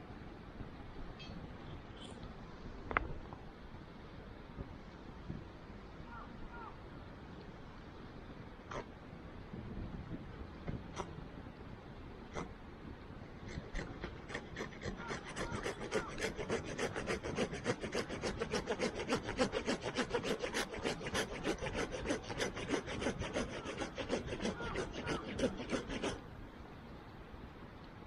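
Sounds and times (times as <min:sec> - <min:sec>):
hand saw cutting wood: 0:13.5 - 0:26.2.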